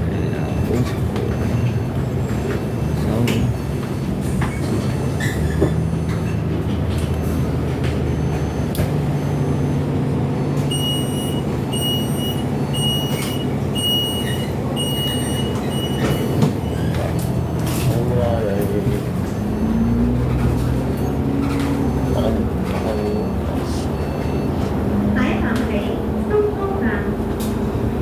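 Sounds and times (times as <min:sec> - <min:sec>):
bus engine and road noise: 0:00.0 - 0:28.0
high electronic beeps: 0:10.7 - 0:17.0, 0:21.0 - 0:24.6.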